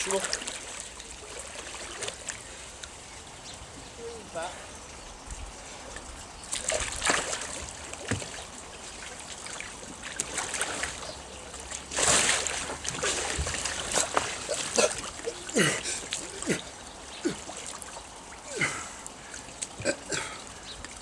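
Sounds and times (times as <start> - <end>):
water splashing around a kayak: 0.0 - 4.9, 5.5 - 21.0.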